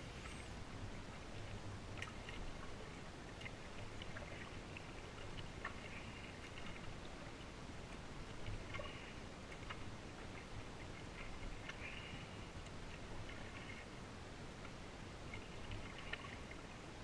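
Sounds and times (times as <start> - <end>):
faint water noise: 0.0 - 17.0
paddle drips and ticks: 1.0 - 17.0.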